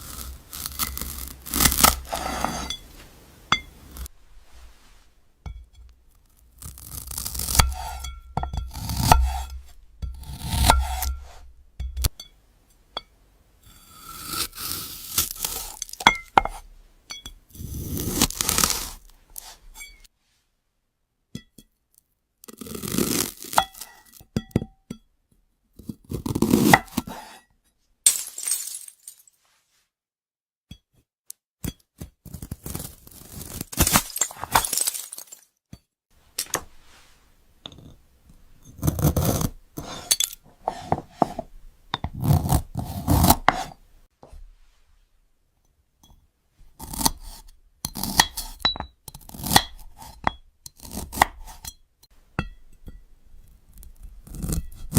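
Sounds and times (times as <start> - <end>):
knife crunching through fruit: 0.0 - 2.9, 6.4 - 8.1, 14.0 - 16.0, 17.6 - 19.6, 22.5 - 24.1, 26.0 - 27.2, 32.2 - 35.2, 42.2 - 43.8.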